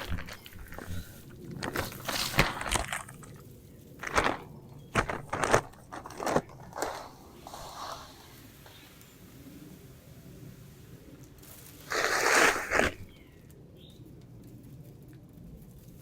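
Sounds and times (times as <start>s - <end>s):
short crunches and rustles: 0.0s - 8.4s, 11.4s - 13.3s.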